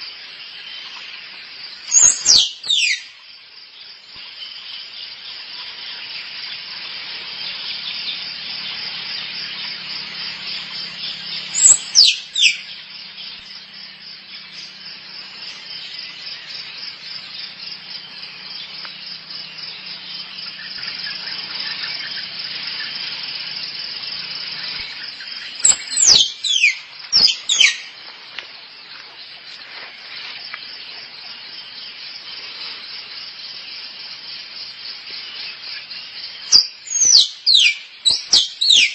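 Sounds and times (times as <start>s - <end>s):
squirrel squealing: 11.6s - 12.2s, 25.6s - 27.7s.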